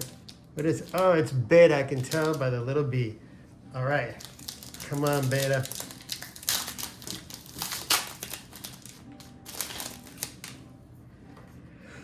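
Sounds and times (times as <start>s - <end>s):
foil pack tearing and crinkling: 0.0s - 1.2s, 1.8s - 2.5s, 4.1s - 10.6s.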